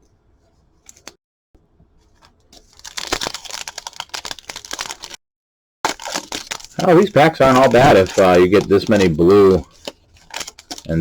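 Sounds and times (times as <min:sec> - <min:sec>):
foil wrapper tearing and crinkling: 0:02.6 - 0:05.2, 0:05.9 - 0:11.0.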